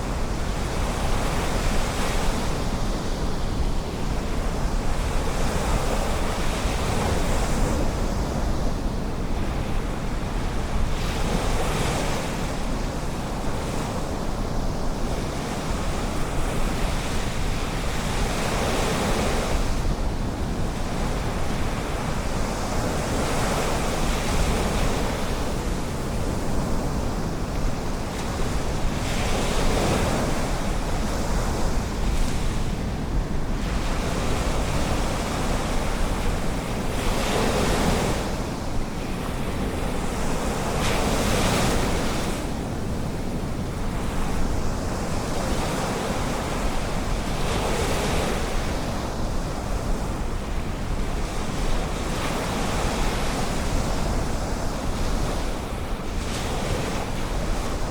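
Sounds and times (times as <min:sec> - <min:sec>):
low rumble of surf: 0:00.0 - 0:57.9.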